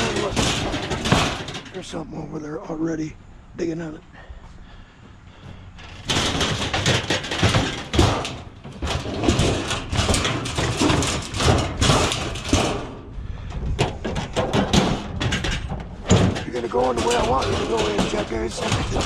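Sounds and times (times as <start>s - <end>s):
scrap clattering and scraping: 0.0s - 2.0s, 5.3s - 19.0s.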